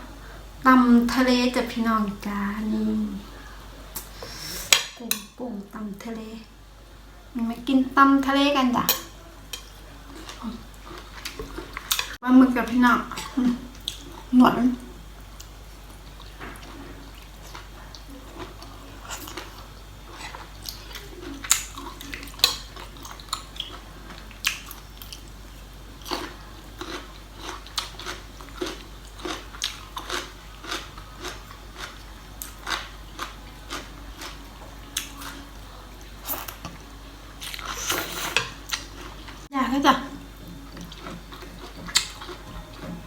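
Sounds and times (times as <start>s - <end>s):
person chewing crunchy food: 9.6s - 12.2s, 15.3s - 39.5s, 40.2s - 43.0s.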